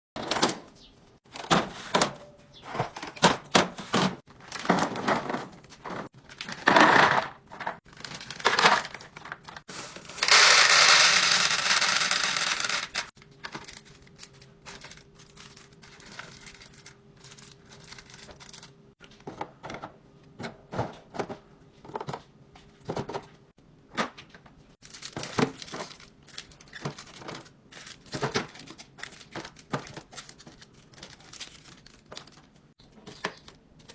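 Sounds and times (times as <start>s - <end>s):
clicks and knocks of items set down: 19.0s - 24.5s
plastic crinkling and tearing: 24.8s - 32.6s.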